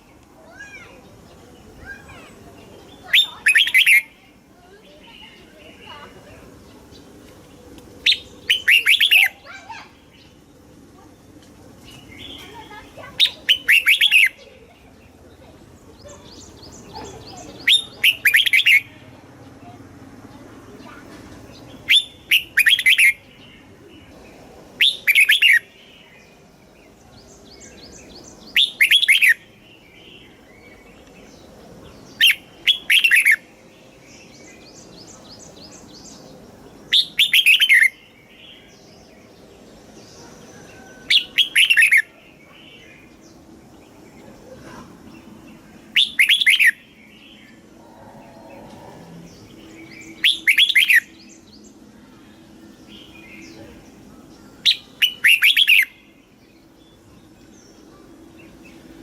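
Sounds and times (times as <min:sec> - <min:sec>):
faint bird chirping: 0:00.0 - 0:59.0
bird singing whistled phrases: 0:03.0 - 0:04.1, 0:08.1 - 0:09.6, 0:13.2 - 0:14.4, 0:17.3 - 0:18.9, 0:21.8 - 0:23.2, 0:24.8 - 0:25.7, 0:28.5 - 0:29.4, 0:32.2 - 0:33.4, 0:36.9 - 0:38.0, 0:40.8 - 0:42.1, 0:45.9 - 0:46.9, 0:50.0 - 0:51.4, 0:54.6 - 0:56.0.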